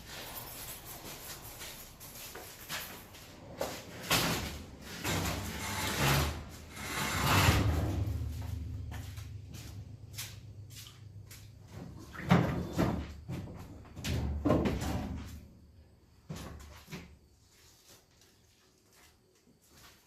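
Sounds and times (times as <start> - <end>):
low rumble: 7.7 - 10.1.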